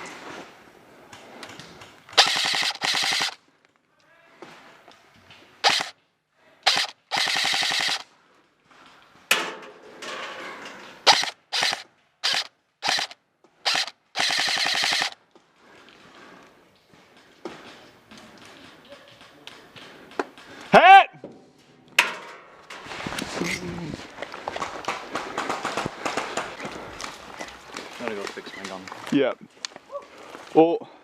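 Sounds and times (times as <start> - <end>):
airsoft gun firing bursts: 2.1 - 3.4, 5.6 - 5.9, 6.6 - 8.1, 11.1 - 15.2.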